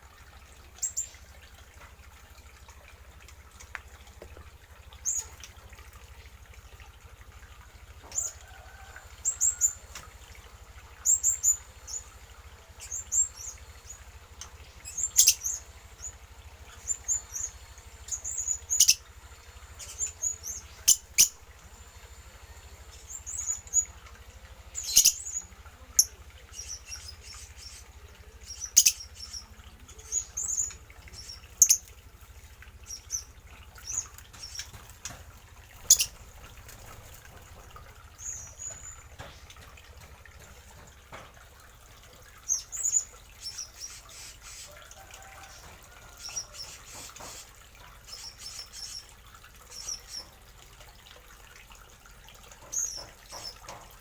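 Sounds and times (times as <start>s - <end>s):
small birds chirping: 0.7s - 1.2s, 5.0s - 5.6s, 10.9s - 24.0s, 24.7s - 32.0s, 32.8s - 41.2s, 42.4s - 50.4s, 52.6s - 53.9s.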